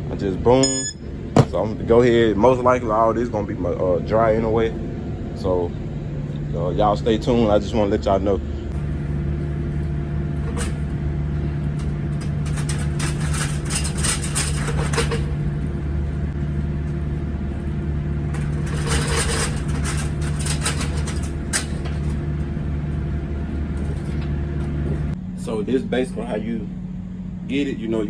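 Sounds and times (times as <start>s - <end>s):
truck engine humming: 0.0s - 28.0s
rattling and clattering: 1.2s - 2.0s, 8.7s - 25.2s
single knock: 1.4s - 1.6s.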